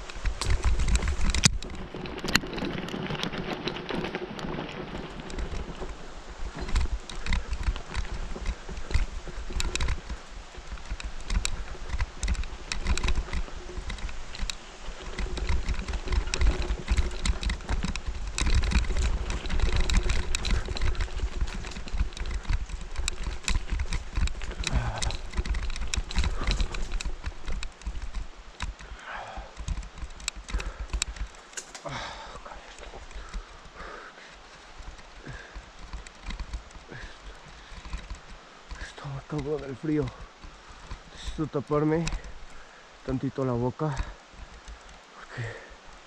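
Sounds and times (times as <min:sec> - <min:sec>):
wind rumble on microphone: 0:00.0 - 0:31.4
bicycle rattling over rough ground: 0:00.0 - 0:46.0.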